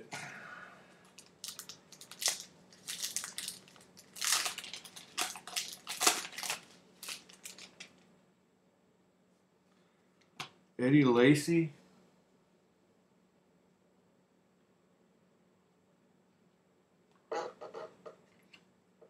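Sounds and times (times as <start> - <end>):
plastic wrapping crinkling and tearing: 1.1 - 8.0.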